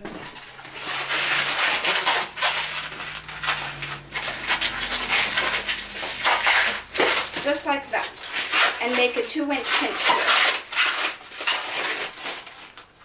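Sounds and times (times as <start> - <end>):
balloons rubbing together: 0.0 - 12.7.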